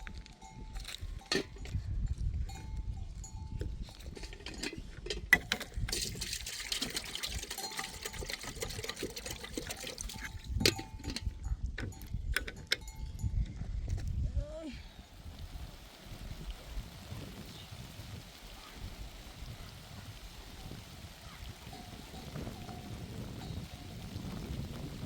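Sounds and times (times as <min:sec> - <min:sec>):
animal bells clinking: 0:00.0 - 0:14.0, 0:20.6 - 0:24.6
steady hiss: 0:14.9 - 0:25.0.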